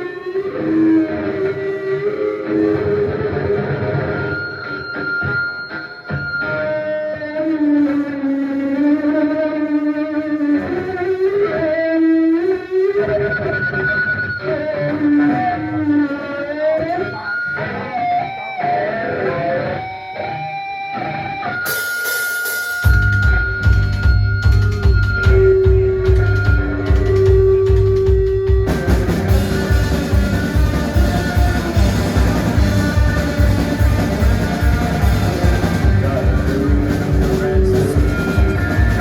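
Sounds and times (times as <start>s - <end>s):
guitar slow gliding melody: 0.0s - 22.0s, 22.8s - 39.0s
drums and cymbals: 21.5s - 39.0s.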